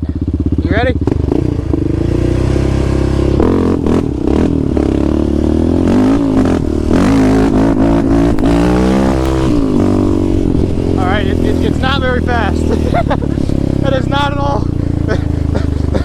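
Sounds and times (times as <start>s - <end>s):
quad engines accelerating hard: 0.0s - 16.0s.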